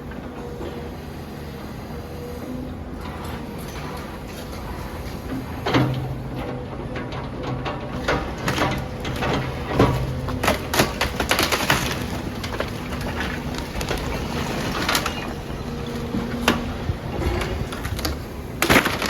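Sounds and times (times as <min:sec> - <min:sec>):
rubble and timber breaking: 0:08.0 - 0:19.0.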